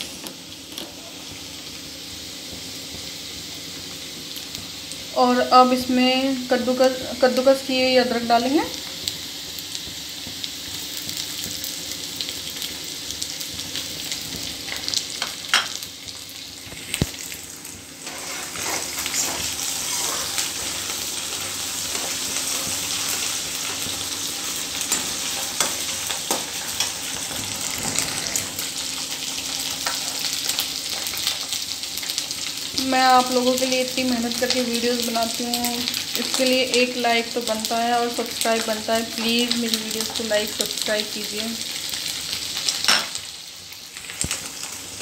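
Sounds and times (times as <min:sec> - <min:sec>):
onion sizzling in hot oil: 0:00.0 - 0:45.0
steel ladle scraping pan: 0:18.0 - 0:20.5.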